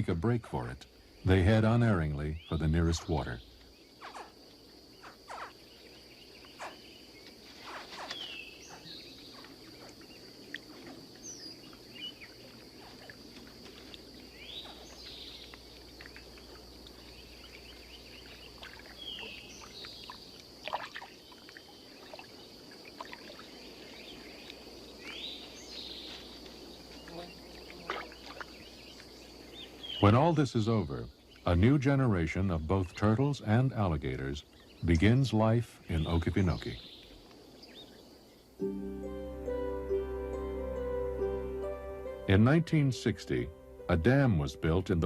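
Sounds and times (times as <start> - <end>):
high insect drone: 0.0 - 33.4.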